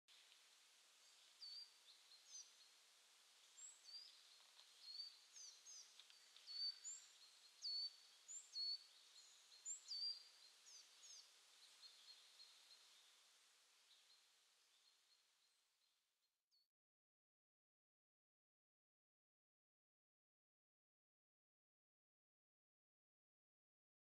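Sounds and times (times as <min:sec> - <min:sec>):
soft steady hiss: 0:00.1 - 0:16.3
faint high bird chirps: 0:03.6 - 0:13.0.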